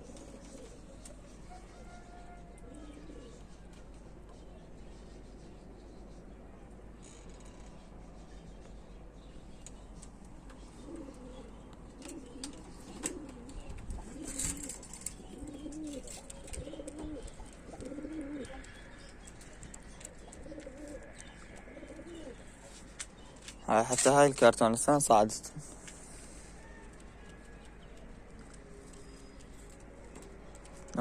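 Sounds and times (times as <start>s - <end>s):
pigeons cooing: 0.0s - 6.5s, 10.4s - 24.0s.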